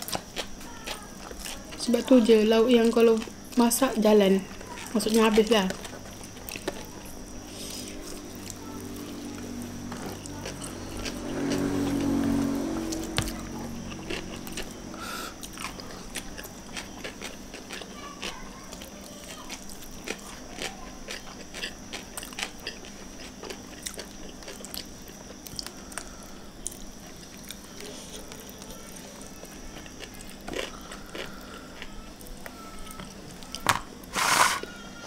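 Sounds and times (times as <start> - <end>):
chewing and mouth smacks: 13.2 - 14.8, 19.5 - 26.0.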